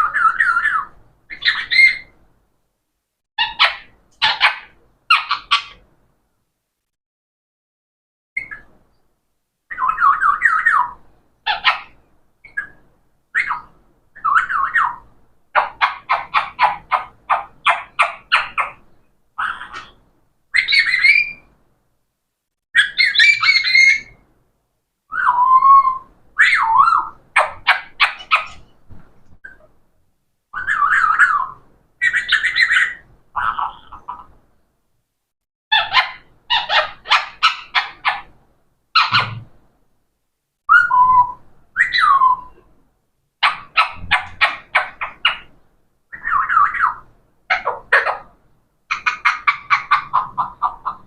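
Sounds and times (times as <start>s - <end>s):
parrot squawking: 0.0s - 2.1s, 3.4s - 5.8s, 9.7s - 12.8s, 13.4s - 18.8s, 19.4s - 20.0s, 20.6s - 21.5s, 22.8s - 24.2s, 25.1s - 28.7s, 30.6s - 34.3s, 35.7s - 38.3s, 39.0s - 39.4s, 40.7s - 42.6s, 43.4s - 45.5s, 46.1s - 51.0s.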